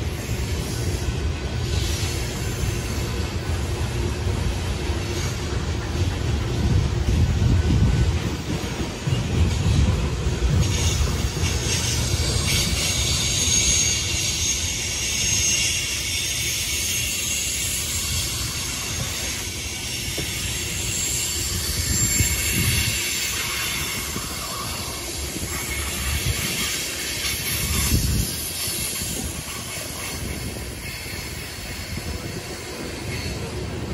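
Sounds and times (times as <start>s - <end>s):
freight train wheels rumbling: 0.0s - 33.9s
high-pitched wheel squeal: 10.5s - 32.3s.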